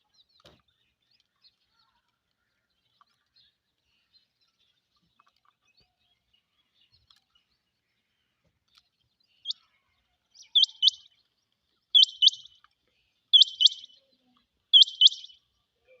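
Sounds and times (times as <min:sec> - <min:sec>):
quail calling with high whistles: 0:10.4 - 0:11.1, 0:12.0 - 0:12.6, 0:13.3 - 0:14.0, 0:14.7 - 0:15.4.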